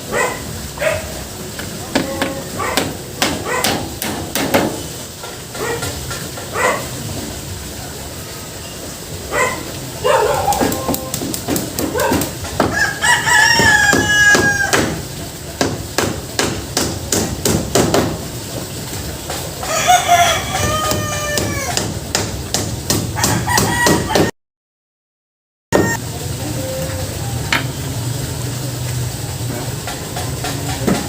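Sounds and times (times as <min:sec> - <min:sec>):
rapid sharp knocks: 0:01.9 - 0:04.9, 0:13.6 - 0:15.0, 0:15.6 - 0:18.2, 0:20.8 - 0:24.3
rooster crowing: 0:12.0 - 0:14.9, 0:19.6 - 0:21.8, 0:23.2 - 0:24.3, 0:25.8 - 0:26.0.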